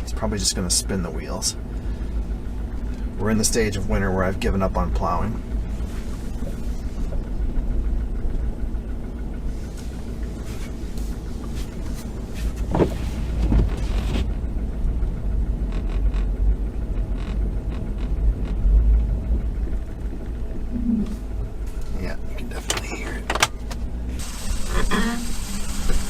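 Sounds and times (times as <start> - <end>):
truck engine rumble: 0.0 - 26.0
short squeaks: 24.5 - 25.9.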